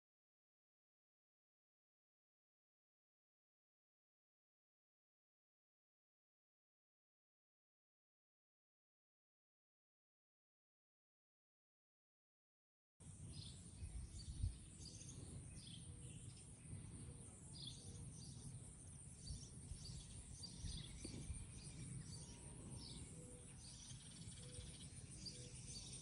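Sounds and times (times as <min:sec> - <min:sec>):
birds chirping faintly: 0:13.0 - 0:26.0.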